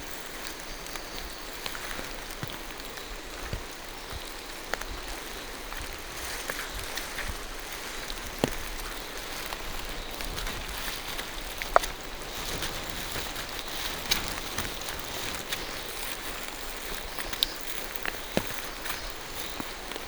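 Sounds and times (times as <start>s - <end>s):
drips hitting leaves: 0.0s - 20.0s
rain falling through trees: 0.0s - 20.0s.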